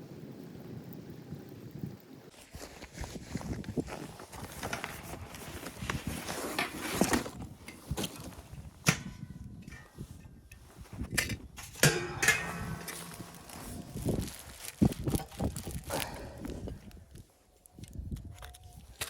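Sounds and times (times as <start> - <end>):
scraping: 9.7 - 16.4.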